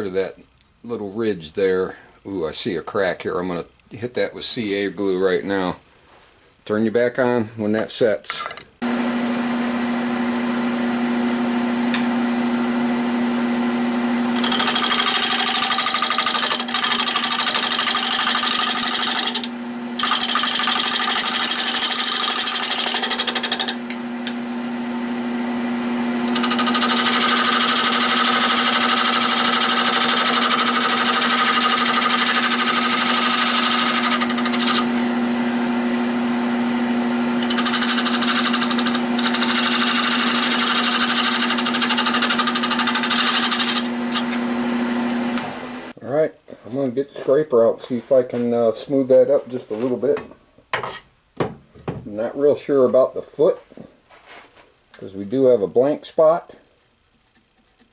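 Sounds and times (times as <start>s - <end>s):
turning tool cutting wood: 8.8s - 46.0s
wood lathe motor hum: 8.8s - 46.0s.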